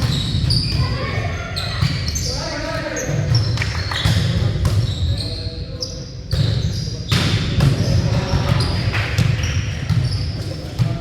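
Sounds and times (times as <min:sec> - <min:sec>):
shoe squeaks: 0:00.0 - 0:04.2, 0:04.8 - 0:07.1.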